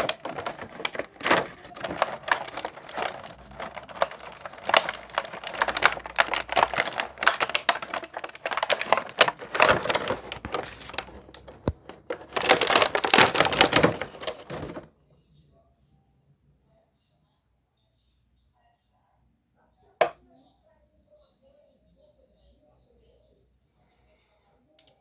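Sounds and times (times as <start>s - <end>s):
packaging crackling and crinkling: 0.0s - 14.9s.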